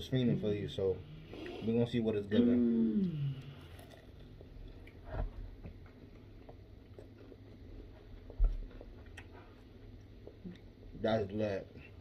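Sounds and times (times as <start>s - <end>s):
chewing fried food: 3.1s - 10.9s.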